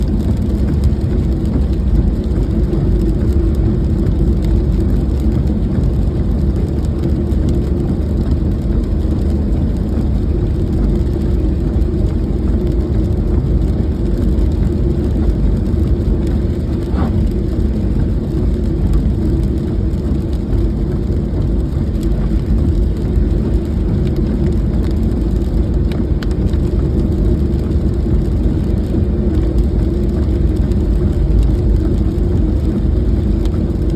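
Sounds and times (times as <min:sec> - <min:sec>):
car road rumble: 0:00.0 - 0:33.9.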